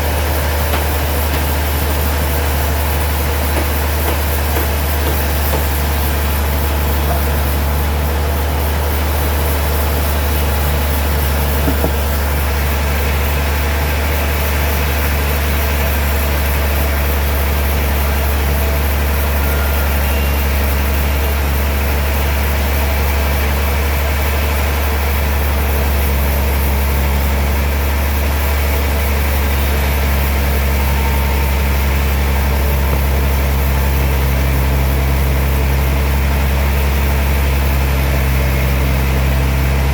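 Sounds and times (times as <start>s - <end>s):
sawmill machinery humming: 0.0s - 39.9s
small knock: 11.6s - 12.2s.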